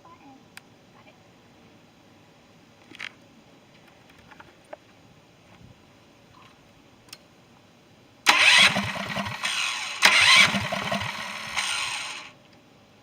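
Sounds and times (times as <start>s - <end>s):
electric starter cranking engine: 8.3s - 12.3s.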